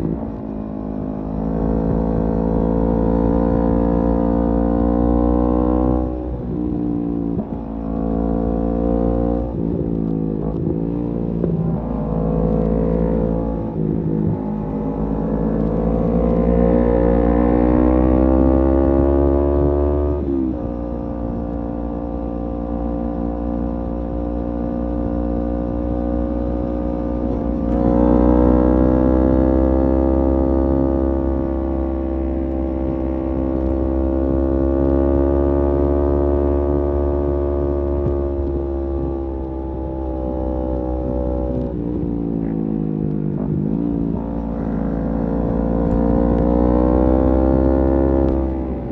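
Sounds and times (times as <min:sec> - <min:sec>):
motorcycle engine cruising: 0:00.0 - 0:48.9.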